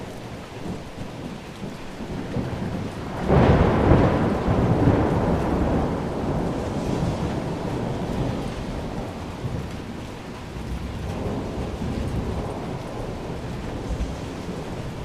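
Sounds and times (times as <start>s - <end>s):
steady rain: 0.0s - 15.0s
rolling thunder: 2.0s - 15.0s.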